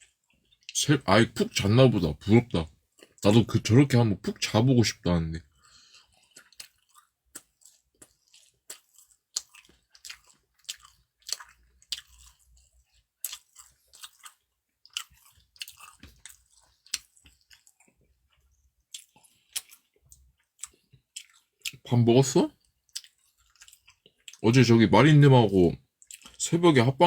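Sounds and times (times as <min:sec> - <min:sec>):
person chewing food: 0:00.0 - 0:00.8, 0:02.2 - 0:03.4, 0:05.4 - 0:21.8, 0:22.5 - 0:24.5, 0:25.9 - 0:26.4.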